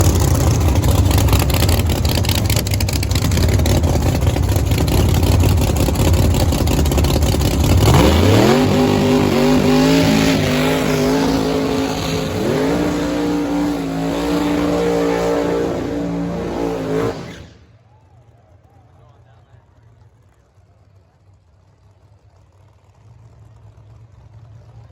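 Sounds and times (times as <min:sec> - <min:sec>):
drag racing car engine revving: 0:00.0 - 0:17.7.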